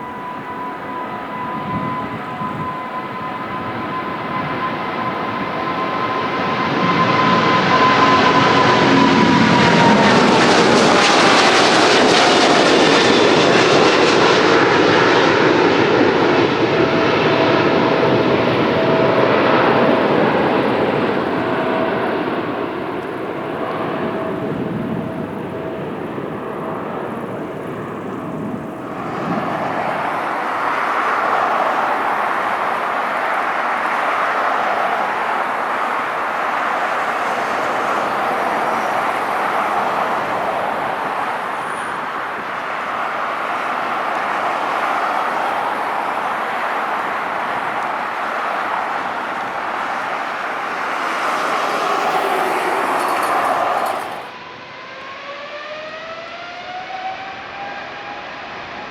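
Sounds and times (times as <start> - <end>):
jet engine roar: 0.0 - 58.9.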